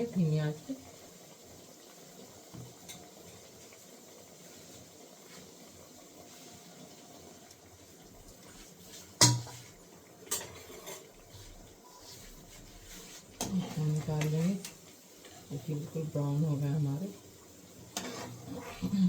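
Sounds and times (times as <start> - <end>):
snacks sizzling in a pan: 0.0 - 19.0
spatula knocking against pan: 9.2 - 9.6.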